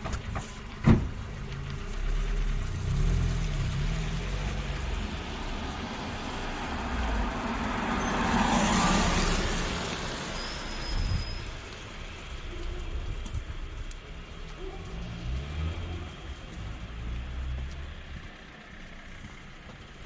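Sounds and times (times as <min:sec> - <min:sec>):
road traffic noise: 0:00.0 - 0:20.0
vehicle passing: 0:01.9 - 0:10.4, 0:14.6 - 0:20.0.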